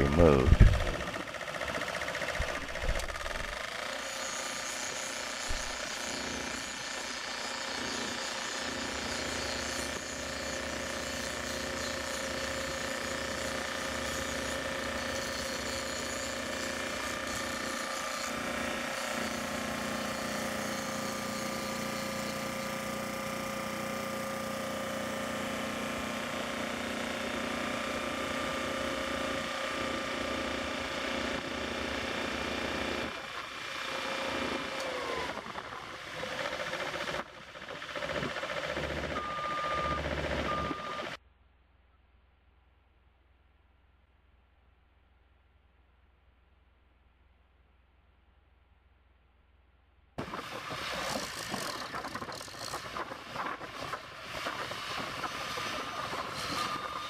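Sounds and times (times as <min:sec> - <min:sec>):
heavy machinery engine whine: 0:00.0 - 0:04.0, 0:33.1 - 0:41.2, 0:50.2 - 0:57.0
short beep: 0:39.2 - 0:41.1.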